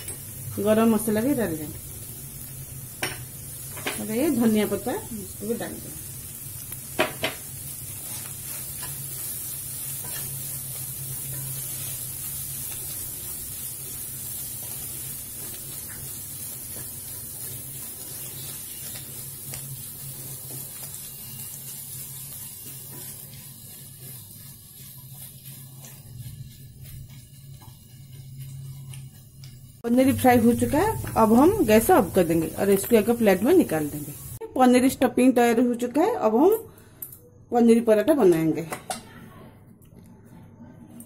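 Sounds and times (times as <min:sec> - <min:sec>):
stuffing sizzling in a pan: 0:00.0 - 0:36.6
spatula scraping a pan: 0:08.0 - 0:10.6
low steady hum: 0:28.0 - 0:34.9.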